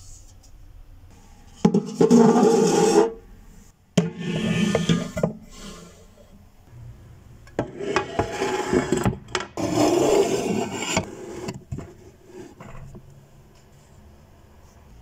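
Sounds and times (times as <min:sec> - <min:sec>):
scraping noises: 0:01.6 - 0:06.3, 0:07.6 - 0:12.9.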